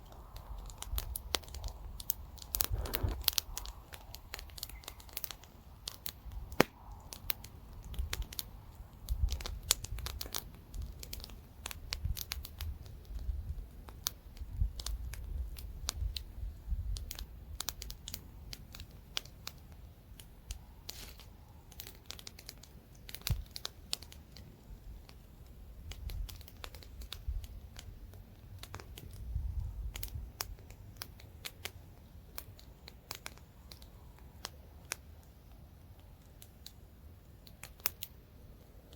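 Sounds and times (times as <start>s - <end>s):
campfire crackling: 0.0s - 38.9s
wind on microphone: 0.1s - 4.9s, 14.4s - 17.6s, 29.1s - 30.4s.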